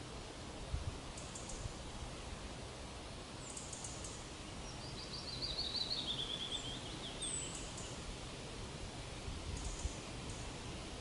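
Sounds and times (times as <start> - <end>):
outdoor background hiss: 0.0 - 11.0
songbird singing: 1.1 - 2.6, 3.2 - 8.2, 8.8 - 11.0.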